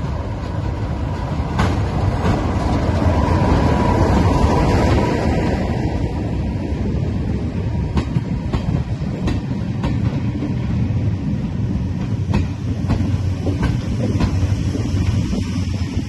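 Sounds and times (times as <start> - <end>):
diesel train engine: 0.0 - 16.0
wheels clicking over rail joints: 0.3 - 3.2.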